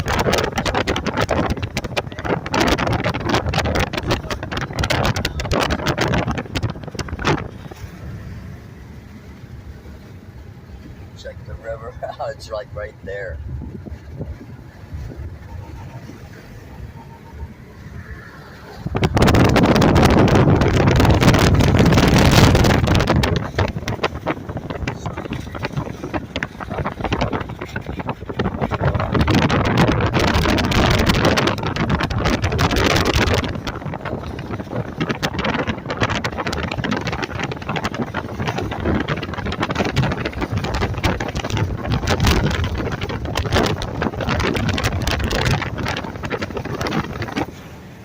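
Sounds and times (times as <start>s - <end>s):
car road noise: 0.0s - 48.0s
wind buffeting microphone: 0.0s - 48.0s
sharp crackles: 19.0s - 47.6s.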